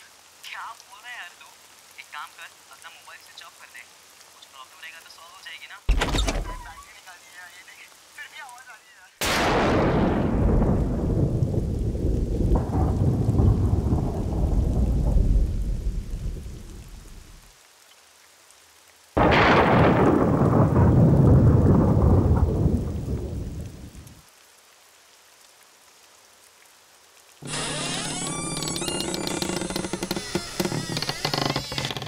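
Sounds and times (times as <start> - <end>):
thunder cracking and rumbling: 9.2 - 17.4, 19.2 - 24.1.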